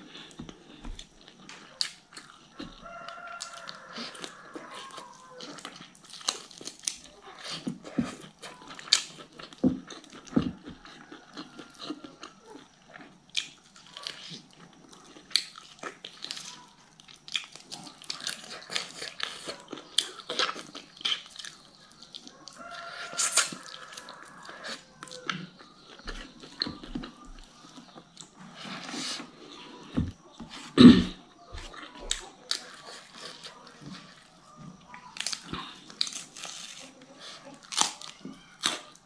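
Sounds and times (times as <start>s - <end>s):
chewing and sucking meat: 0.0s - 30.8s.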